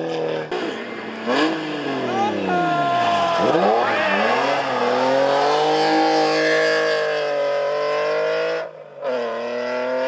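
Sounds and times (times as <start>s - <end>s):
race car engine at high revs: 0.0s - 10.0s.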